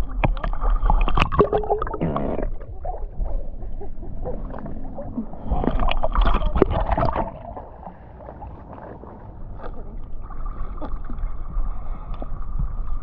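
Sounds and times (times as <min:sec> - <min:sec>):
water splashing from paddling: 0:00.0 - 0:02.7, 0:05.0 - 0:11.4.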